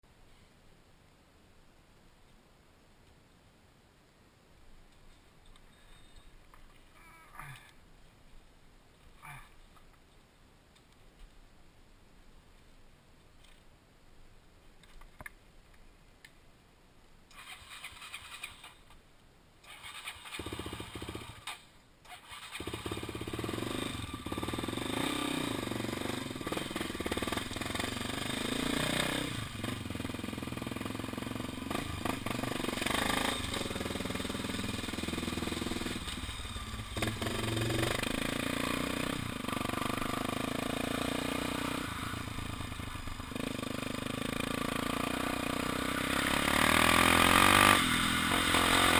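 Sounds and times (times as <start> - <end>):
motorcycle engine starting: 17.3 - 18.9, 19.6 - 48.9.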